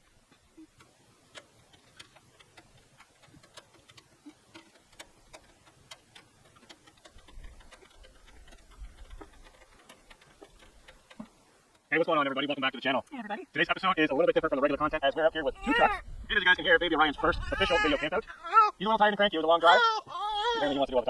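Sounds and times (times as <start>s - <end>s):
faint irregular ticks and clicks: 0.0s - 21.0s.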